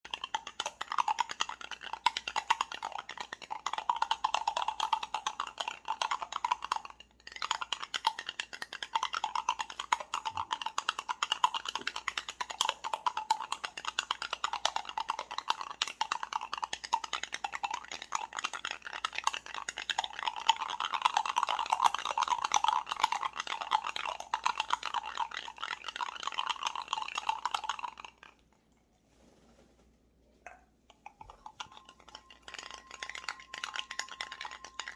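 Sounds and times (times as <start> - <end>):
spoon and ice clinking in glass: 31.1 - 34.9.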